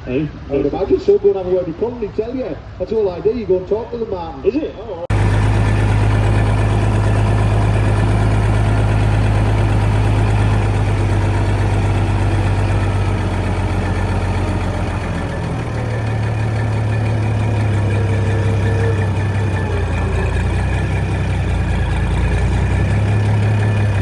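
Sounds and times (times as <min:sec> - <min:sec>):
engine idling: 0:05.1 - 0:24.0.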